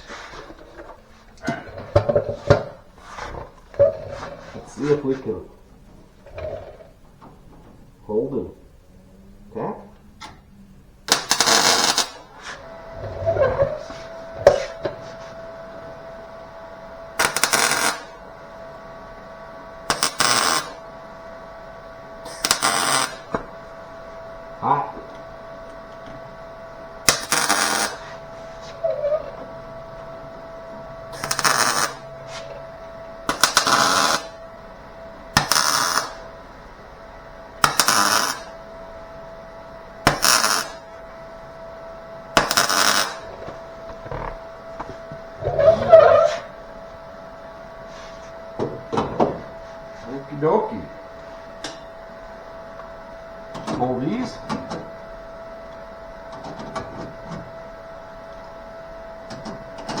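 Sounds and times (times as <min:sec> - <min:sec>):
electrical hum: 0:00.0 - 1:00.0
welding crackle: 0:11.0 - 0:12.4, 0:17.2 - 0:18.2, 0:19.9 - 0:20.8, 0:22.2 - 0:23.4, 0:27.0 - 0:28.2, 0:31.1 - 0:32.0, 0:33.3 - 0:34.4, 0:35.3 - 0:36.3, 0:37.6 - 0:38.6, 0:40.0 - 0:40.9, 0:42.4 - 0:44.4.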